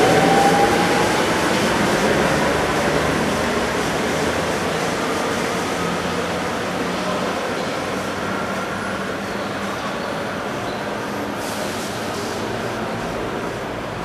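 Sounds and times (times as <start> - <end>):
electric train running: 0.0 - 6.8.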